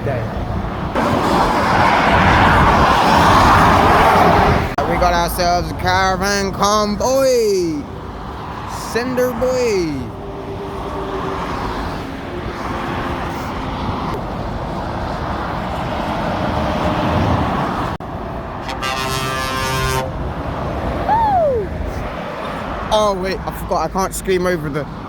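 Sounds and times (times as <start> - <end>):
motorway traffic: 0.0 - 25.0
lorry air horn: 18.6 - 20.2.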